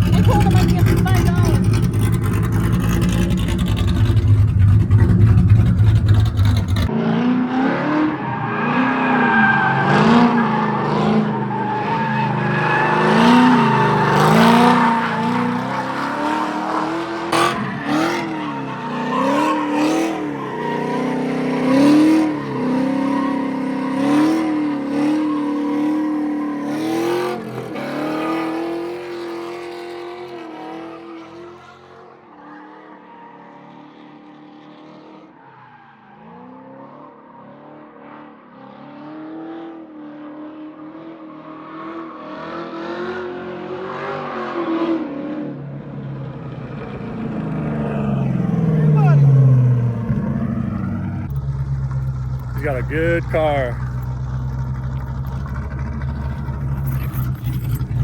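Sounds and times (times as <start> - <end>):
car engine revving: 0.0 - 32.0, 46.7 - 58.0
tires squealing: 0.0 - 38.2, 47.0 - 58.0.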